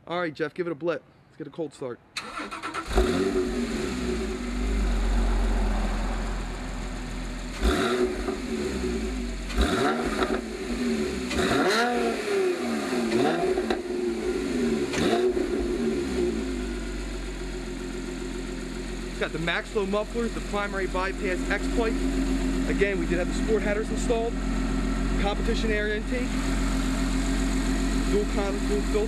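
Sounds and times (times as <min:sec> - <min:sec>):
engine revving blips: 0:02.2 - 0:18.3
car engine starting and idling: 0:02.2 - 0:29.0.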